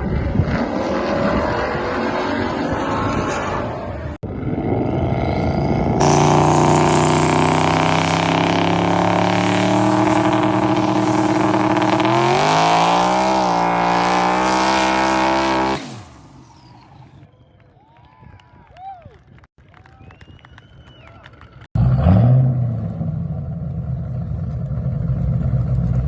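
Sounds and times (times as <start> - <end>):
car engine revving: 0.2 - 17.2.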